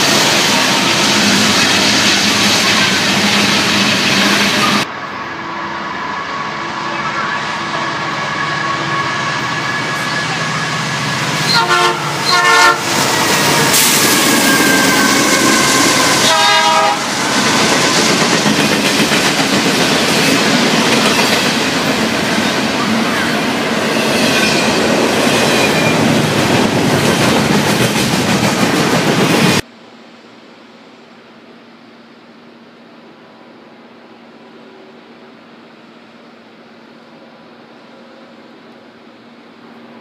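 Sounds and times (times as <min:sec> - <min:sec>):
rumble and clatter of rail cars: 0:00.0 - 0:29.7, 0:32.7 - 0:40.0
freight train passing: 0:00.0 - 0:40.0
train air horn blasts: 0:08.2 - 0:17.3.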